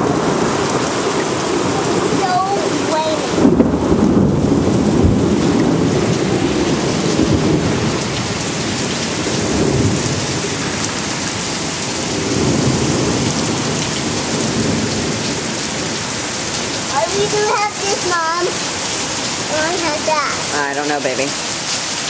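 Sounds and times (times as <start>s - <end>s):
low thunder rumble: 0.0s - 19.5s
heavy rain pouring: 0.0s - 22.0s.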